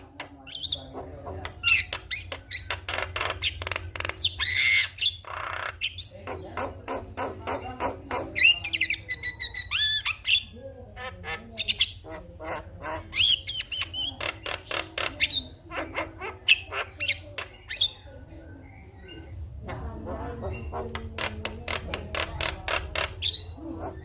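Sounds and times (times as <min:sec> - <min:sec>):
myna bird chattering: 0:00.0 - 0:24.0.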